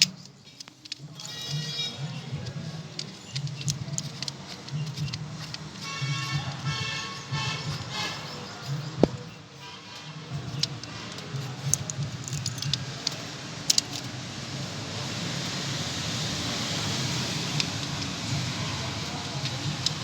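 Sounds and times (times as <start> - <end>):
metallic clinks of tools: 0.0 - 14.2.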